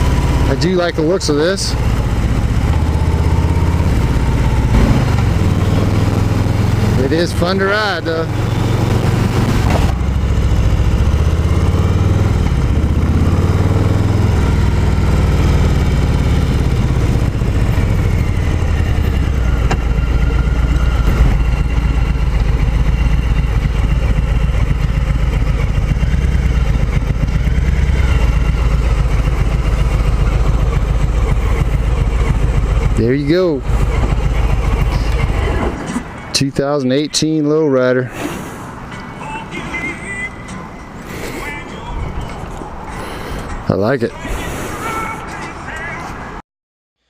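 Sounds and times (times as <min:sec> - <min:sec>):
motorcycle engine running: 0:00.0 - 0:35.8.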